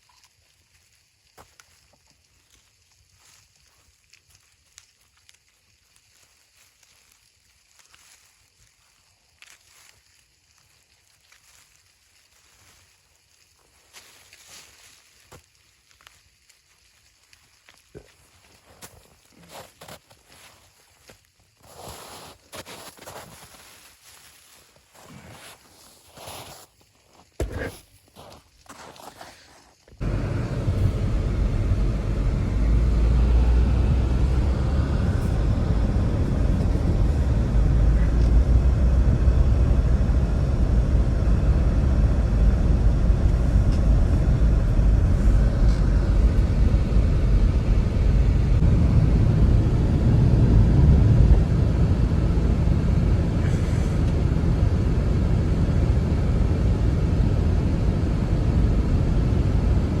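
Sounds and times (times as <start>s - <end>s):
strong wind blowing: 30.0s - 60.0s.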